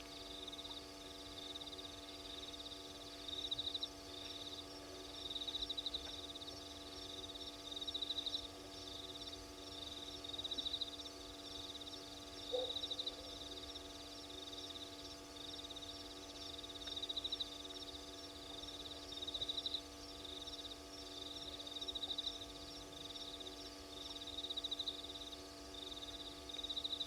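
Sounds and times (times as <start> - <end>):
cricket pulsed trill: 0.0 - 27.0
steady low hum: 0.0 - 27.0.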